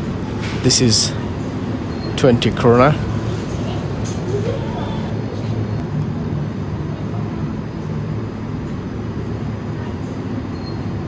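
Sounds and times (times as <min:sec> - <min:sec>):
low machine hum: 0:00.0 - 0:06.2.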